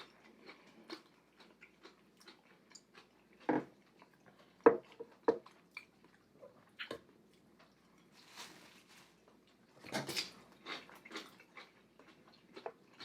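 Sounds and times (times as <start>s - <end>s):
person chewing: 0.0s - 8.2s, 9.1s - 13.0s.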